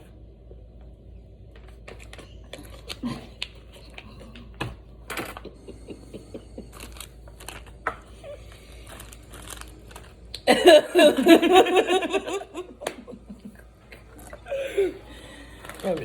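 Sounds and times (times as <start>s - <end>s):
plastic wrapper crinkling: 6.6s - 10.4s.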